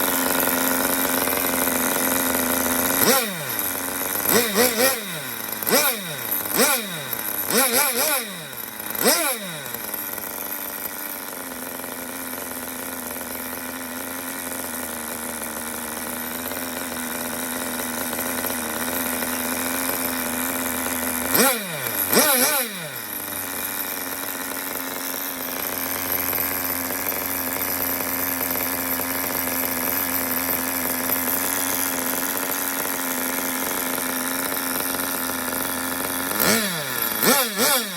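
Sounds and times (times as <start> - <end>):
small nitro engine idling: 0.0 - 37.9
engine revving on throttle blips: 0.3 - 10.4, 21.1 - 24.0, 35.2 - 37.9.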